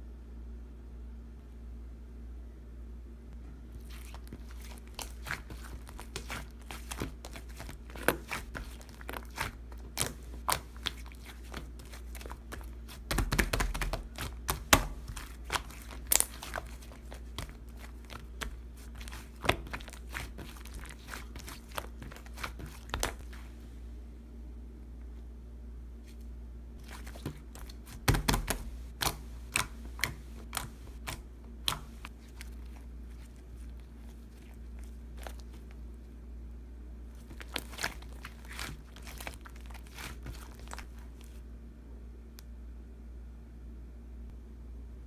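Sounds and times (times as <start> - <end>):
steady low hum: 0.0 - 45.0
slime squished crackling: 3.8 - 23.5, 26.8 - 35.9, 37.1 - 41.4.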